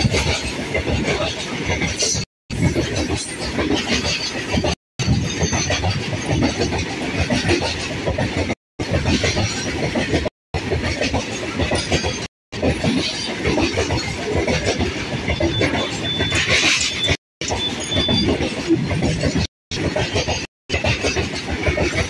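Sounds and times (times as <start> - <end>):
freight train wheels clattering: 0.0 - 22.0.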